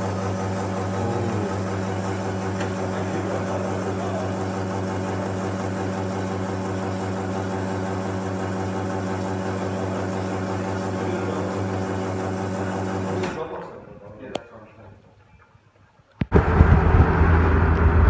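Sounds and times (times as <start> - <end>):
low engine hum: 16.3 - 18.0.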